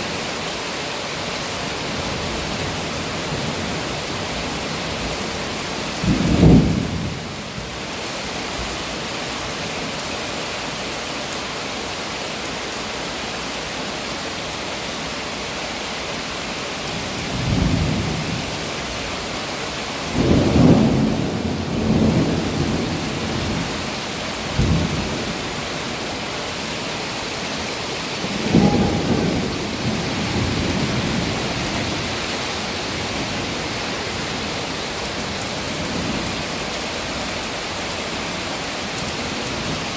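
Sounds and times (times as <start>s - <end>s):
heavy rain hissing: 0.0s - 39.9s
thunder rumbling: 6.0s - 7.4s, 20.1s - 26.2s, 28.2s - 36.4s.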